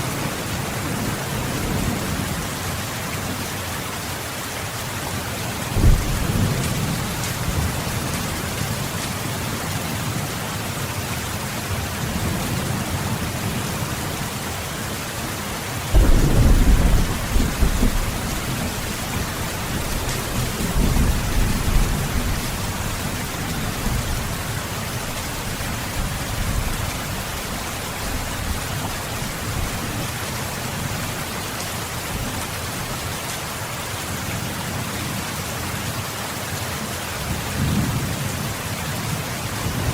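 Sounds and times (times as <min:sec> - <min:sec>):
heavy rain: 0:00.0 - 0:39.9
rolling thunder: 0:05.7 - 0:08.2, 0:15.9 - 0:24.3.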